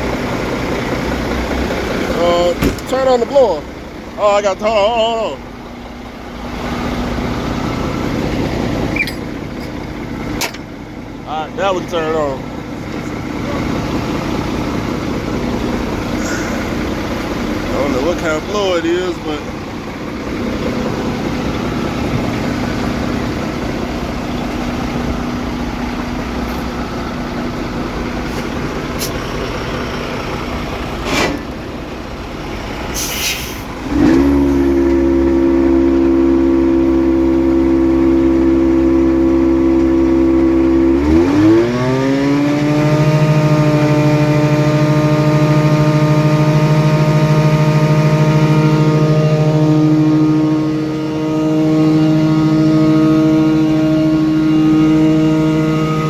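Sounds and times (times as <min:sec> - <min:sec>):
diesel engine idling: 0:00.0 - 0:56.0
blower running: 0:05.3 - 0:56.0
short hiss: 0:32.9 - 0:33.7.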